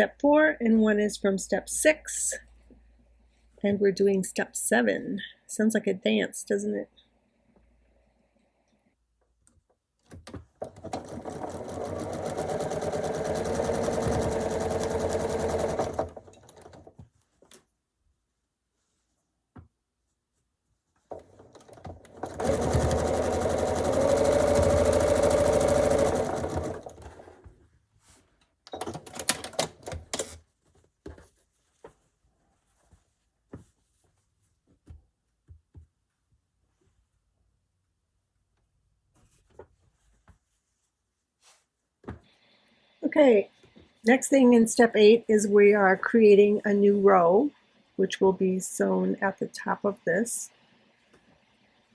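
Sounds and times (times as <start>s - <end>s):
sewing machine stitching: 10.3s - 17.0s, 21.1s - 27.4s, 28.7s - 30.4s.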